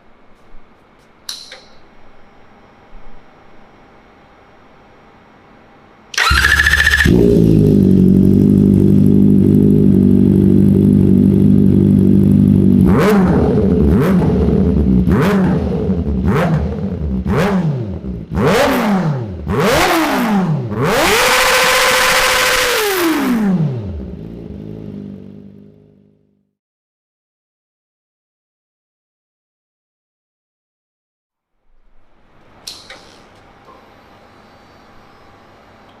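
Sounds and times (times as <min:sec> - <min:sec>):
motorcycle engine idling and revving: 0:06.2 - 0:26.4.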